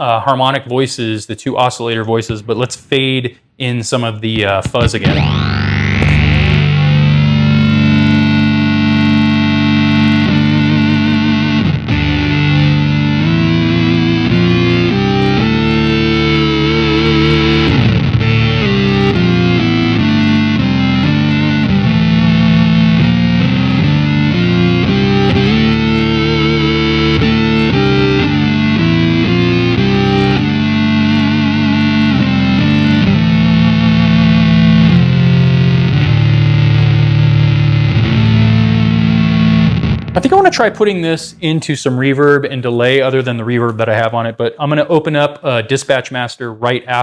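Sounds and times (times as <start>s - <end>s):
synth-like electric guitar notes: 4.6s - 41.4s.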